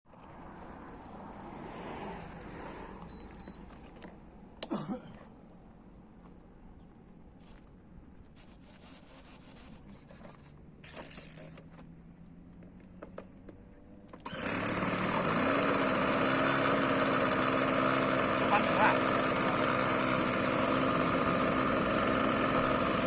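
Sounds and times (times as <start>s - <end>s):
model airplane engine running: 14.2s - 23.0s.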